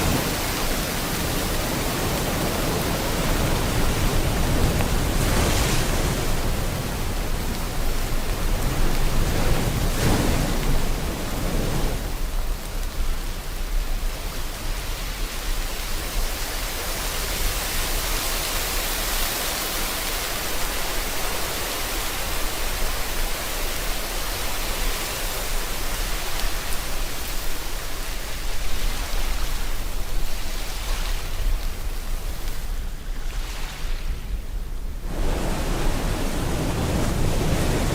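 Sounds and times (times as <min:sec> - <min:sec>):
ocean surf: 0:00.0 - 0:37.9
steady rain: 0:00.0 - 0:37.9.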